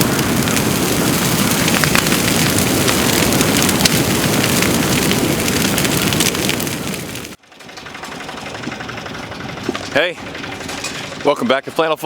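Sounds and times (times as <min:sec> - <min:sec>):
heavy rain: 0:00.0 - 0:07.4.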